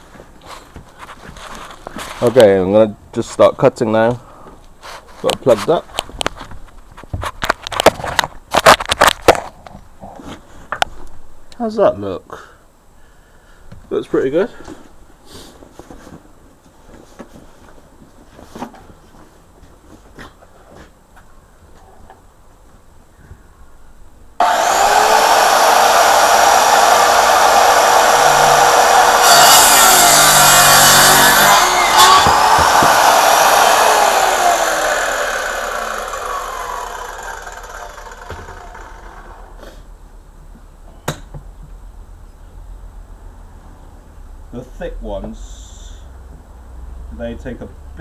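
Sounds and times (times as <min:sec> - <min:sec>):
power saw motor whine: 0:24.4 - 0:39.5.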